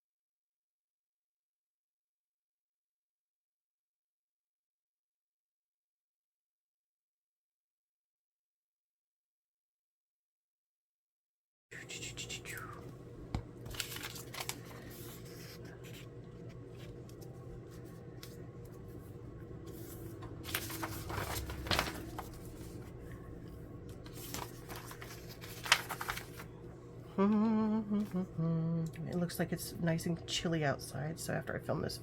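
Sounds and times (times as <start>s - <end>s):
steady low hum: 11.7s - 32.0s
paper rustling and crinkling: 13.6s - 26.6s.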